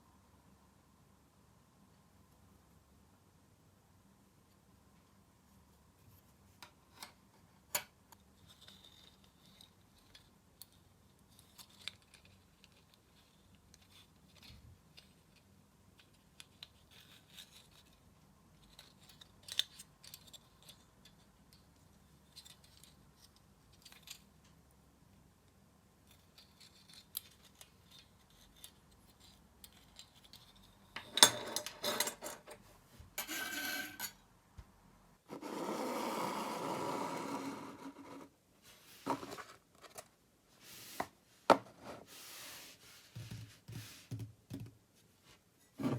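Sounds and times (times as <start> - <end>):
faint scratching and rubbing: 35.3 - 41.2, 41.8 - 44.1.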